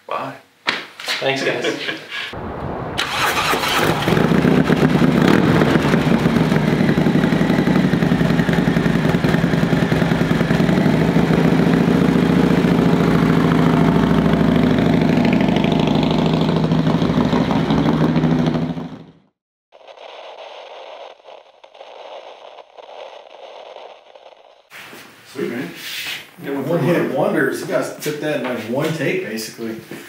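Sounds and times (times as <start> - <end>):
motorcycle engine idling: 3.4 - 19.2.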